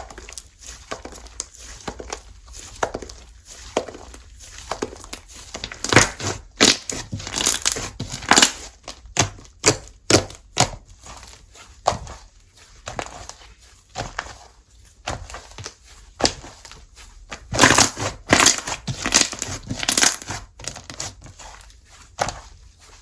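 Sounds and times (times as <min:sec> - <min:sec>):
slime popping and crackling: 0:00.0 - 0:12.1, 0:17.4 - 0:22.6.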